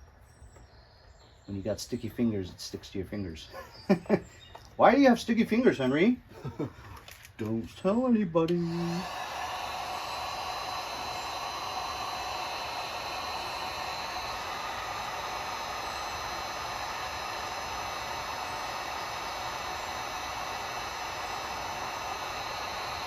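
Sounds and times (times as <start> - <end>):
faint high whine: 0.0 - 23.0
heat gun blowing hot air: 8.4 - 23.0.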